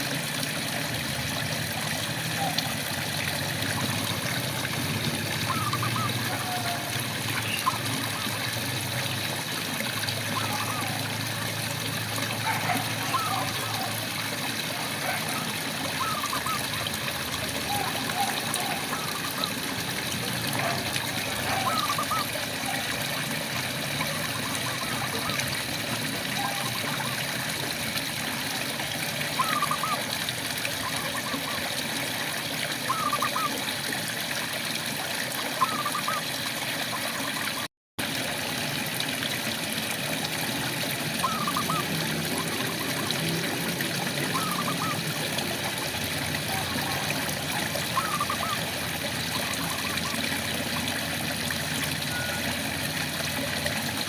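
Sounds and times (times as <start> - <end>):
frog calling: 5.4 - 8.5, 10.4 - 11.1, 12.4 - 14.0, 16.0 - 17.0, 20.6 - 22.9, 24.0 - 25.5, 26.4 - 27.2, 29.4 - 30.0, 32.9 - 33.6, 35.6 - 36.3, 41.2 - 43.1, 44.2 - 45.2, 46.3 - 50.3.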